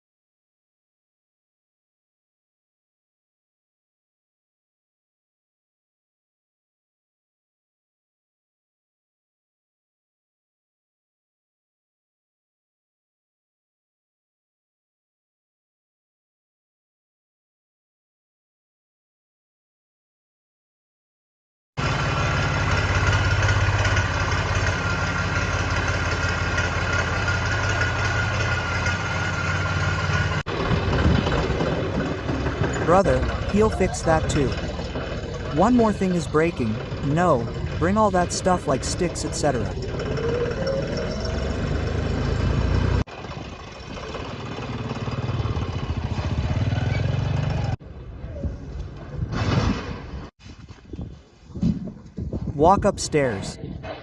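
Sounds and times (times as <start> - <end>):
tractor engine idling: 21.8 - 47.7.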